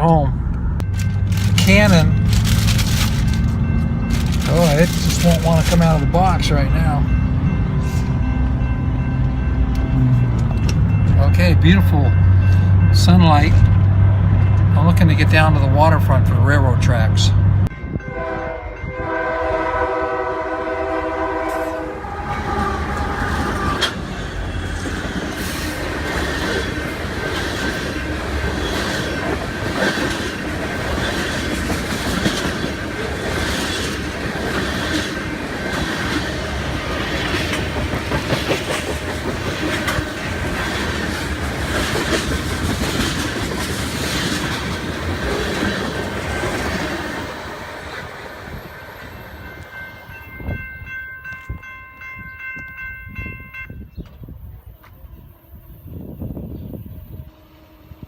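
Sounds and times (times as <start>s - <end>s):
train rumbling past: 0.0s - 58.0s
train wheels clickety-clack: 0.9s - 6.4s, 23.2s - 47.4s
train horn chord: 17.8s - 24.0s.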